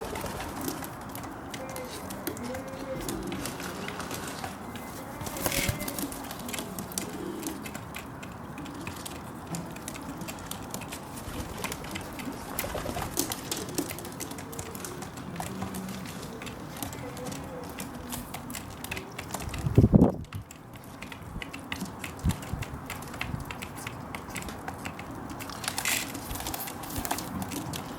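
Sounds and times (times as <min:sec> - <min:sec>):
pigeon cooing: 0:00.0 - 0:20.0
pigeon pecking seeds on sill: 0:00.0 - 0:27.9.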